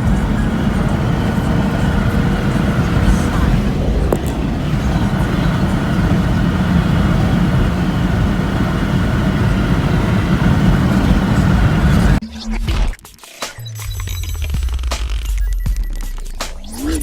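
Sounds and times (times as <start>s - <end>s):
diesel engine low rumble: 0.0s - 12.2s.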